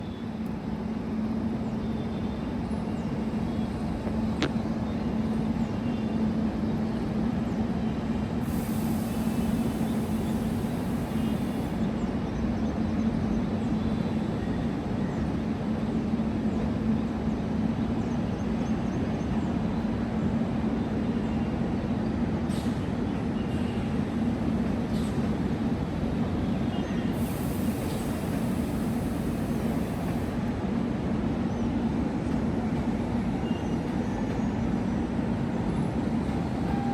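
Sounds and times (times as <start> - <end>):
electric train rumbling: 0.0 - 36.9
high hiss: 8.4 - 11.8, 27.2 - 30.4.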